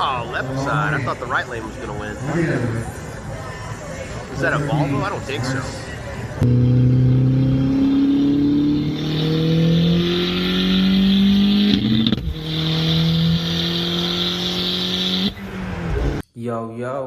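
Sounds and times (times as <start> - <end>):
car engine accelerating: 4.3 - 16.2.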